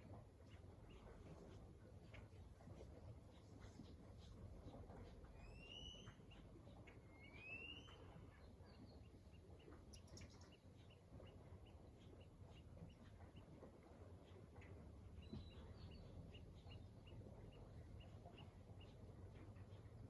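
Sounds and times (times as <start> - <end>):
low background rumble: 0.0 - 20.0
bird whistled calls: 5.4 - 6.2, 7.1 - 8.0.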